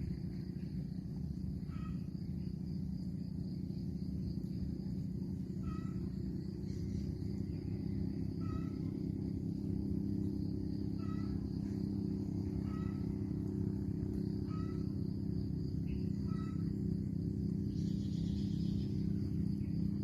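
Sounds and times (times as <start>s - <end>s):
steady low hum: 0.0s - 20.0s
bird call: 1.6s - 2.1s, 5.6s - 7.1s, 8.4s - 9.0s, 10.9s - 11.8s, 12.4s - 13.2s, 14.4s - 15.0s, 15.8s - 16.7s.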